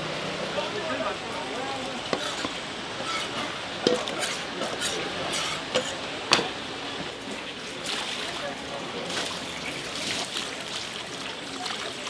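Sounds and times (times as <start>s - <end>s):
dishes and utensils clinking: 2.0s - 7.2s.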